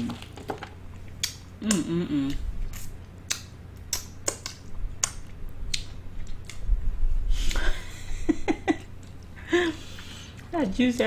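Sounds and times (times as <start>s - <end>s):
mouth smacks and clicks: 1.2s - 6.6s.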